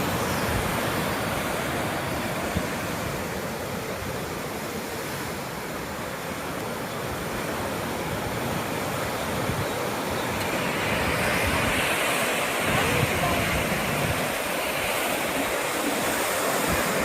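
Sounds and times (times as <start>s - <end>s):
ocean surf washing: 0.0s - 17.0s
wind noise on microphone: 8.1s - 17.0s.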